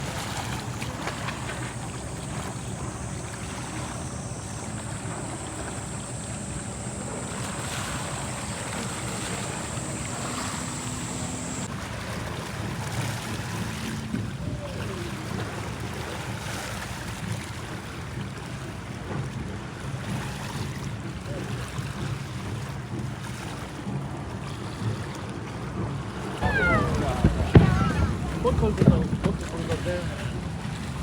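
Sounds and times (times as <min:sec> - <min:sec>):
low steady hum: 0:00.0 - 0:11.7
sea waves washing on shore: 0:00.0 - 0:12.2, 0:26.4 - 0:31.0
wind on microphone: 0:26.4 - 0:31.0.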